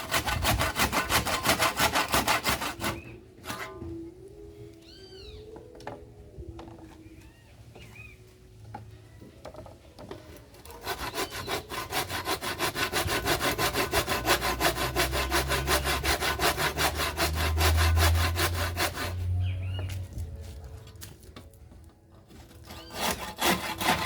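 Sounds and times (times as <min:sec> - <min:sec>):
handsaw cutting wood: 0:00.0 - 0:03.7, 0:10.7 - 0:19.4, 0:22.6 - 0:24.0.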